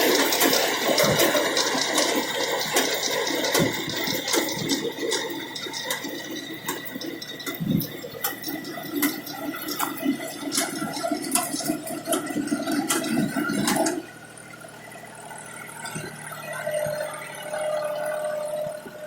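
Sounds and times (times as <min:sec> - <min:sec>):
clatter of clicks and rattles: 0:00.0 - 0:14.1
reaper mechanical whine: 0:00.0 - 0:19.0.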